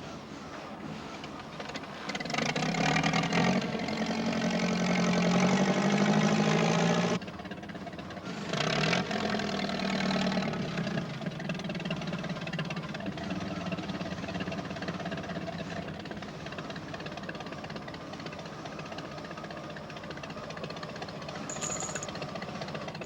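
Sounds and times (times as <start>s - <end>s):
machine engine running under load: 0.0s - 23.0s.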